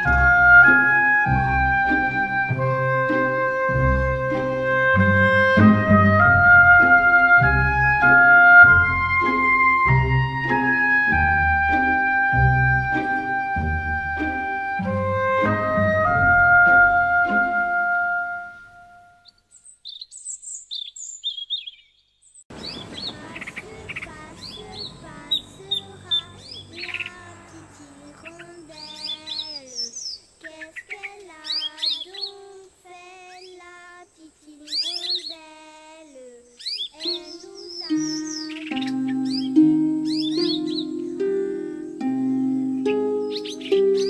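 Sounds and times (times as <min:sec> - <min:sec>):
soft background music: 0:00.0 - 0:19.1, 0:37.1 - 0:44.0
birds chirping: 0:00.0 - 0:44.0.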